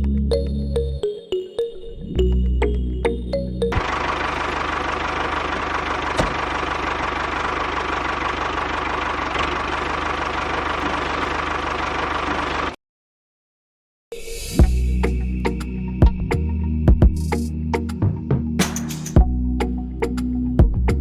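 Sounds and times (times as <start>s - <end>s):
small engine knocking: 3.8s - 12.8s.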